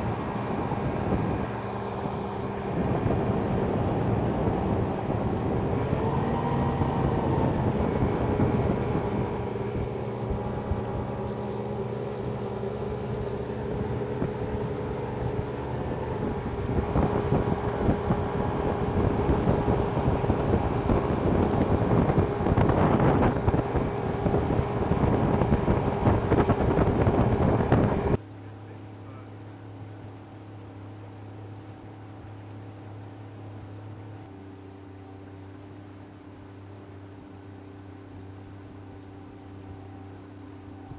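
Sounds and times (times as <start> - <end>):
wind buffeting microphone: 0.0 - 28.2
boat engine running: 0.0 - 40.9.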